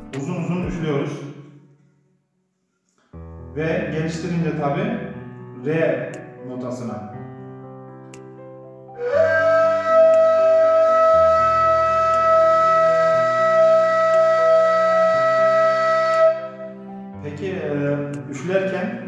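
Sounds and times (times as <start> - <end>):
end-blown flute long note: 9.0 - 16.9.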